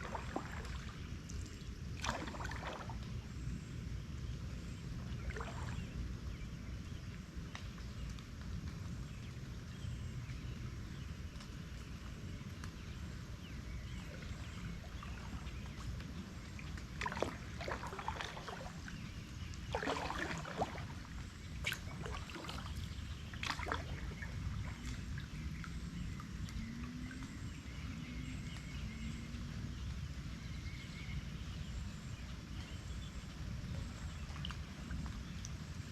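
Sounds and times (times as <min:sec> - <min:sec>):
paddle splashing in water: 0:00.0 - 0:03.2, 0:05.1 - 0:06.0, 0:13.7 - 0:27.8.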